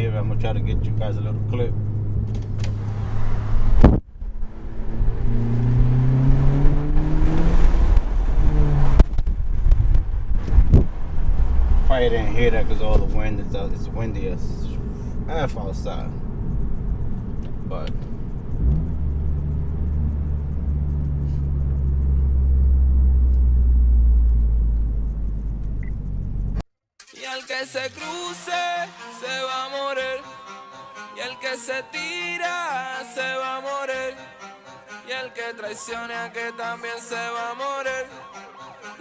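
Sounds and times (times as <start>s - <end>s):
car exhaust drone: 0.0s - 26.6s
four-cylinder engine accelerating: 0.0s - 26.6s
wind noise: 0.4s - 26.6s.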